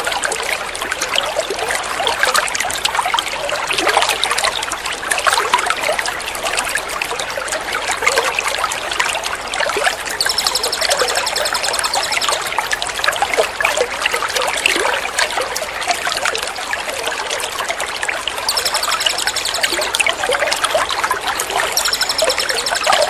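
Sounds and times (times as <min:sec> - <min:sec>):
songbird buzzy trill: 0:10.0 - 0:12.7, 0:18.4 - 0:23.0.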